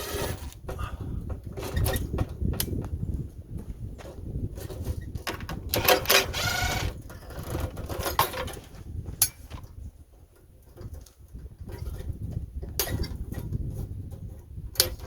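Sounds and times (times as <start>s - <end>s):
metal parts clanking and scraping: 0.0s - 0.6s, 5.3s - 8.6s.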